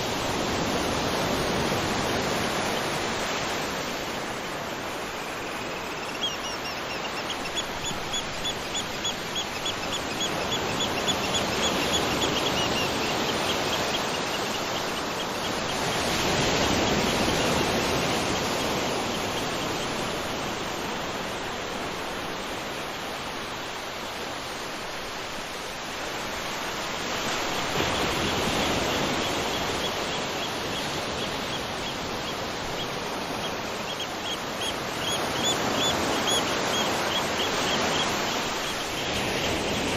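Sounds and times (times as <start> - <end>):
bird chirping rapidly: 5.3 - 15.0.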